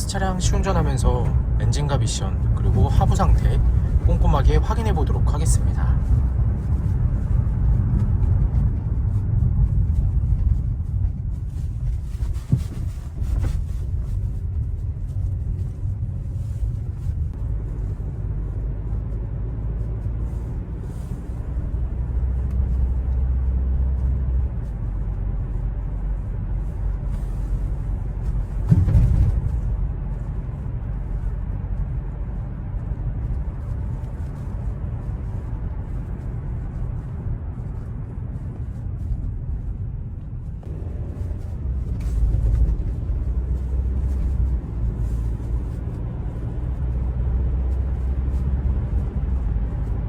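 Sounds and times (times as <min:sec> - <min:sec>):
car engine and road rumble: 0:00.0 - 0:50.0
thump: 0:28.6 - 0:29.6.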